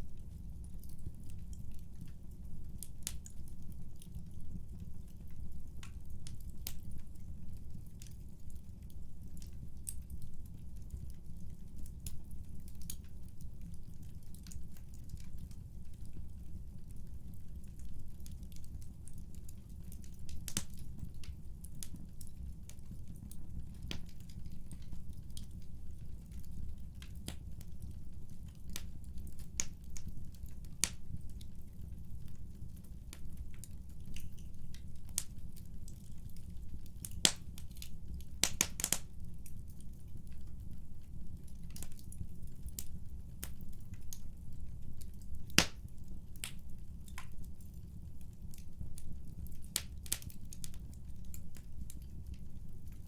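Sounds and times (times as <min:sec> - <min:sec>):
wood crackling and popping: 0:00.0 - 0:53.0
fire flames rumbling: 0:14.1 - 0:53.0.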